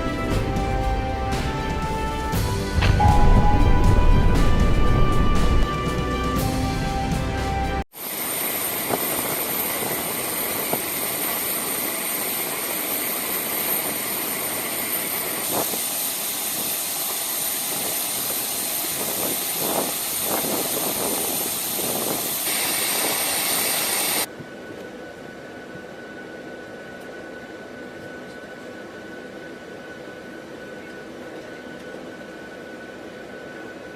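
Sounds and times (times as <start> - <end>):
jet engines running: 0.0 - 33.9.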